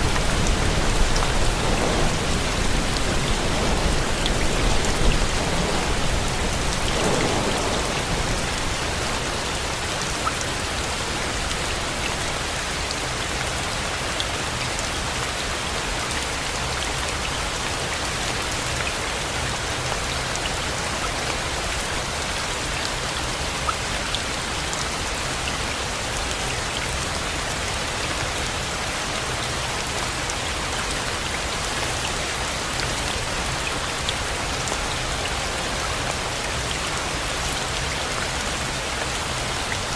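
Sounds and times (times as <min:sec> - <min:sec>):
rain hissing: 0:00.0 - 0:09.9.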